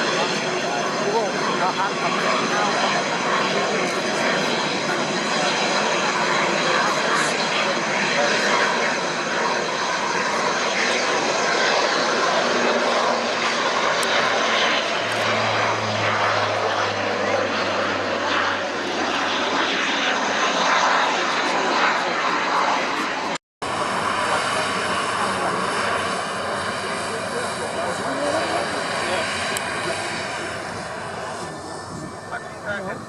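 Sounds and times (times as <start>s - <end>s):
airliner engines running: 0.0s - 33.0s
low hum: 13.0s - 21.0s.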